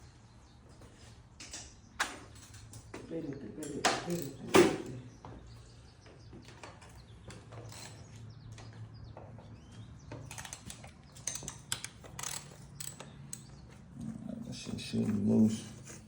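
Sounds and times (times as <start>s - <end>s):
metallic clicks of hand tools: 3.6s - 4.7s, 10.3s - 13.5s.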